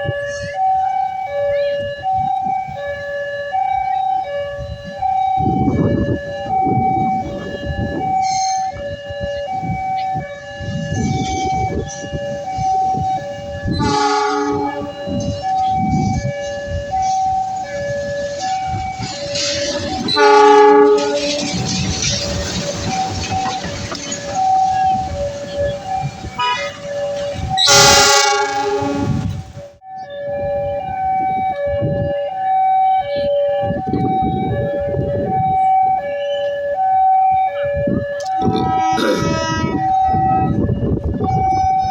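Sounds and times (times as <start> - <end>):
level crossing alarm: 0.0 - 41.9
train rumbling past: 2.2 - 29.8, 36.7 - 41.9
train horn: 10.2 - 21.8, 24.7 - 29.5, 37.5 - 40.6.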